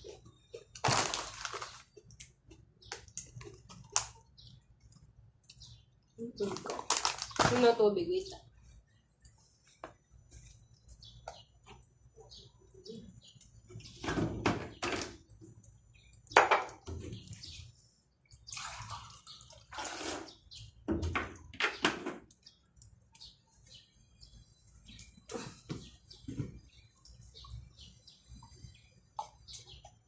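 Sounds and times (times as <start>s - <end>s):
water sloshing and pouring: 16.8s - 21.5s.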